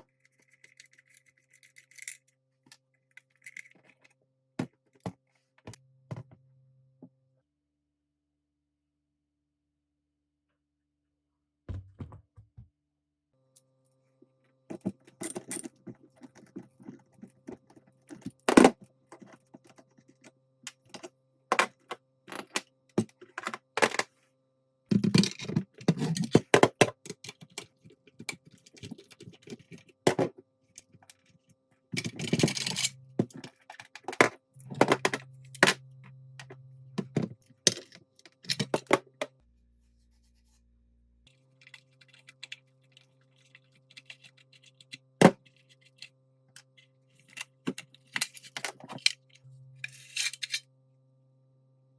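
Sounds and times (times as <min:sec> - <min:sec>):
metal parts and tools clicking: 0:32.0 - 0:35.8, 0:41.6 - 0:50.6.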